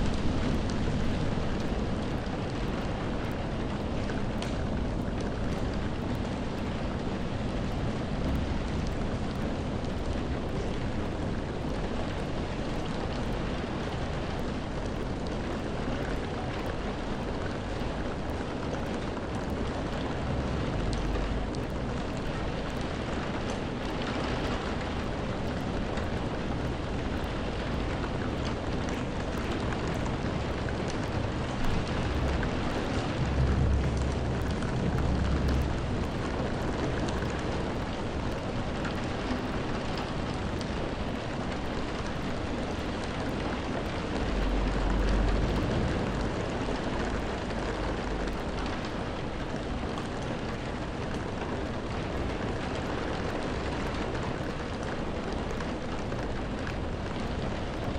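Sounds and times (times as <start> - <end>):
steady rain hissing: 0.0 - 57.9
low rumble: 30.0 - 38.6.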